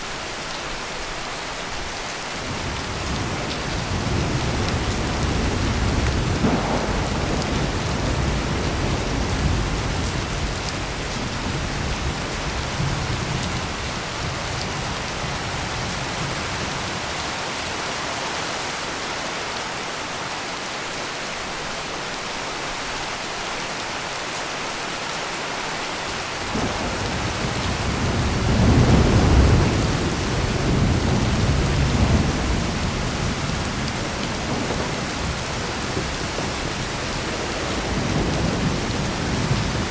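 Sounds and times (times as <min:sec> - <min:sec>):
heavy rain pouring: 0:00.0 - 0:39.9
thunder rumbling: 0:02.5 - 0:17.1, 0:26.4 - 0:39.9.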